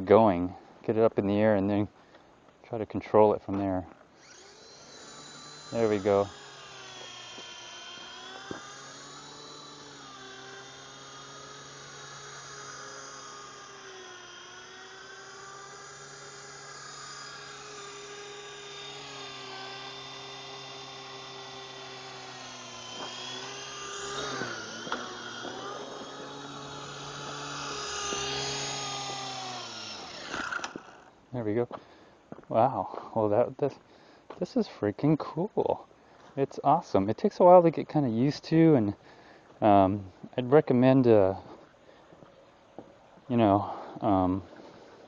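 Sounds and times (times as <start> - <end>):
toy helicopter motors whining: 4.1 - 31.2.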